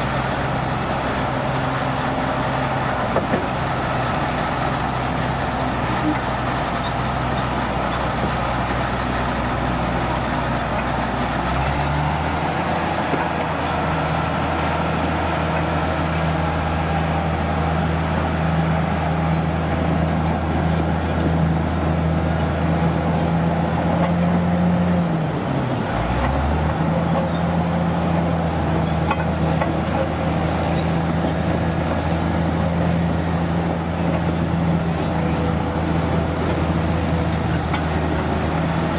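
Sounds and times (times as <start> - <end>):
heavy engine running: 0.0 - 38.9.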